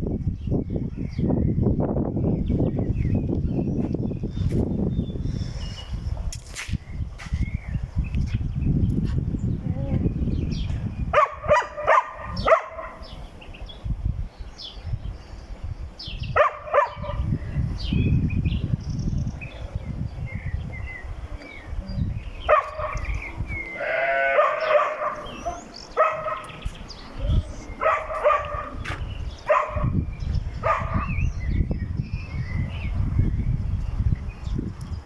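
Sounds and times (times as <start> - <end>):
gusty low rumble: 0.0 - 24.4, 25.0 - 35.0
sheep or goats bleating: 23.8 - 24.6.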